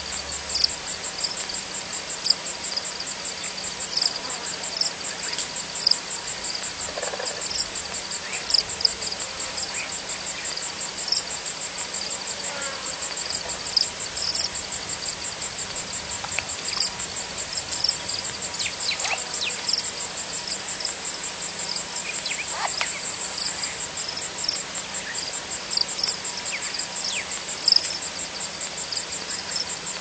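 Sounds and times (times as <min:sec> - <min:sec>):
crickets trilling: 0:00.0 - 0:30.0
louder insect chirps: 0:00.0 - 0:30.0.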